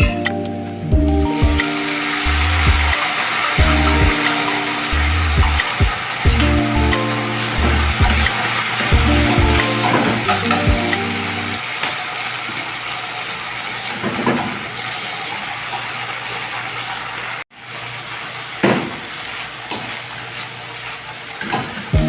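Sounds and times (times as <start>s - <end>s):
food sizzling in hot oil: 1.3s - 22.0s.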